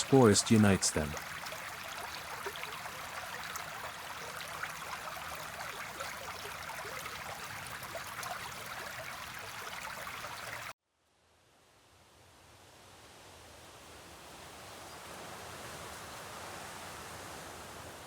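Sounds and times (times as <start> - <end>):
babbling stream water: 0.0 - 10.8.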